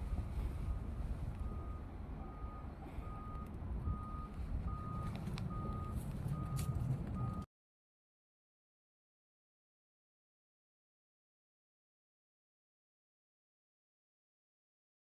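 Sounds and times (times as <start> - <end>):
wind rumble on microphone: 0.0 - 2.2
reversing alarm beeping: 0.1 - 7.5.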